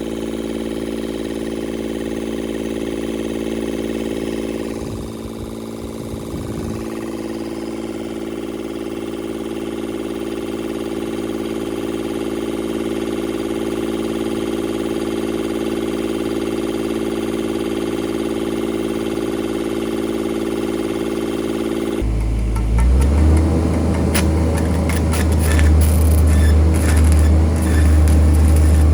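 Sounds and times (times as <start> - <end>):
diesel engine running steadily: 0.0 - 28.9
deep rumble: 4.6 - 7.1, 22.0 - 28.9.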